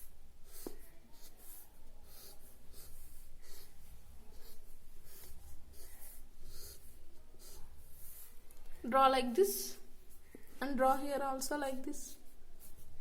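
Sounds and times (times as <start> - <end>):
pen scratching on paper: 0.4 - 8.4.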